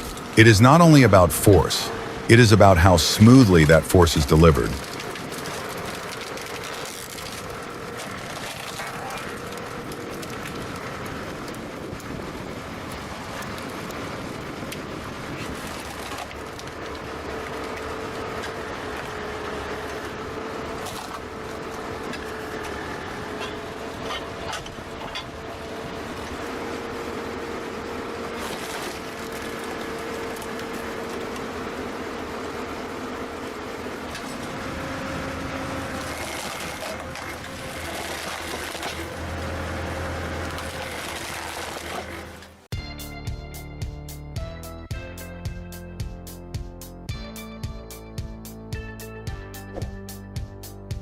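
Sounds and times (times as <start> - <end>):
hydraulic log splitter droning: 0.0 - 42.7.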